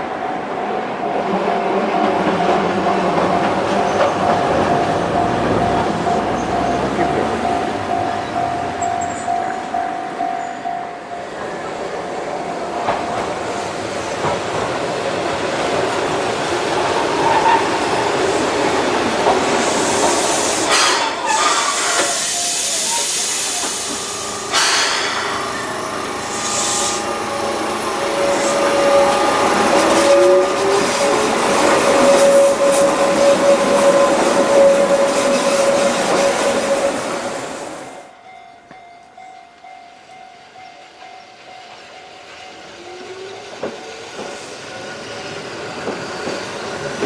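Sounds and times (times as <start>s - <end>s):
air hissing: 19.5s - 27.3s
electric train running: 21.7s - 37.8s.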